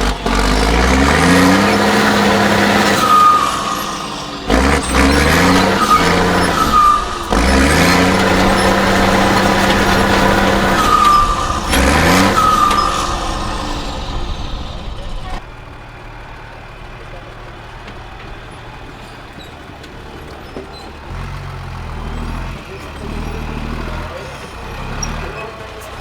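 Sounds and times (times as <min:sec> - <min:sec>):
diesel engine revving: 0:00.0 - 0:26.0.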